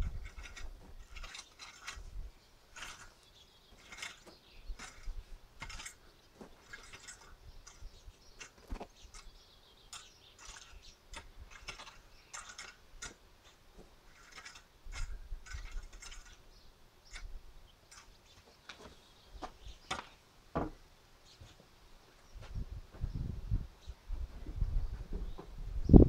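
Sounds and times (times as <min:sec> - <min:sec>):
rake scratching soil: 0:00.0 - 0:16.5.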